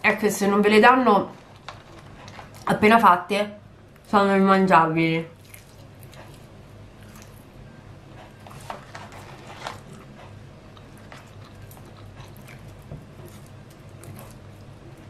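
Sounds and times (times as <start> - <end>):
steady low hum: 0.0 - 15.0
person chewing with mouth clicks: 5.4 - 15.0.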